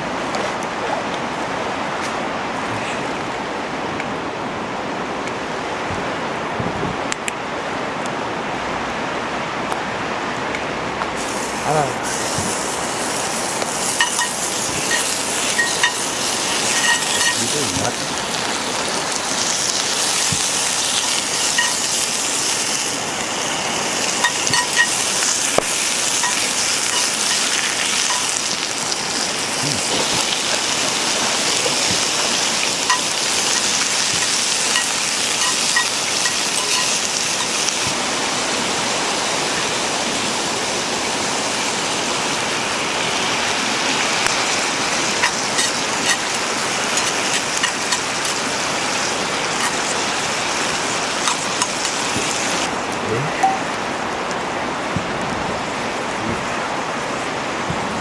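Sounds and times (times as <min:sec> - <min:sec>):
wood fire crackling: 0:09.5 - 0:58.0
food sizzling in a skillet: 0:11.2 - 0:38.6, 0:42.7 - 0:52.7.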